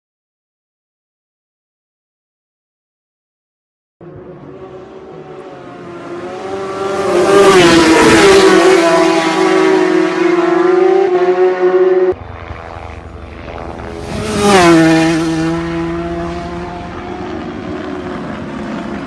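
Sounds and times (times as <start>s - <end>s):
engine passing by: 4.0s - 19.0s
racing motorcycle engine revving: 4.0s - 19.0s.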